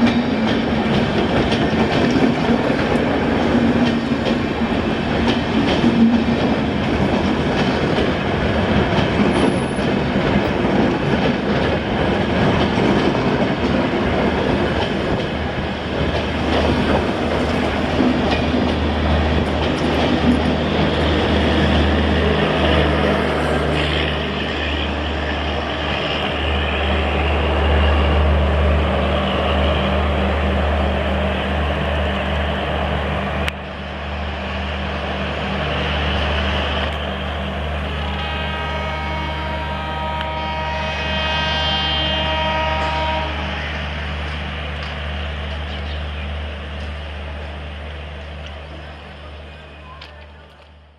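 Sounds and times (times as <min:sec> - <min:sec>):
train wheels clicking over rail joints: 0:00.0 - 0:23.5.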